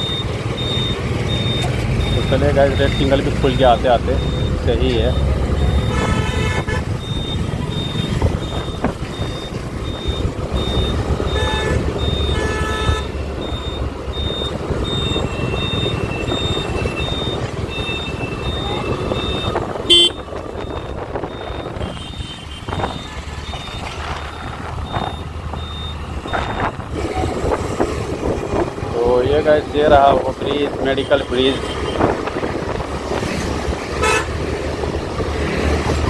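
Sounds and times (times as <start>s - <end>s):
high electronic beep: 0.0s - 6.0s, 7.0s - 12.4s, 13.0s - 26.7s
engine and road rumble: 0.0s - 36.0s
vehicle horns honking: 5.7s - 8.8s, 10.6s - 13.3s, 14.9s - 20.4s, 21.6s - 23.1s, 30.8s - 32.2s, 34.0s - 34.4s
loud horn blast: 5.9s - 6.9s, 11.4s - 13.1s, 34.0s - 34.4s.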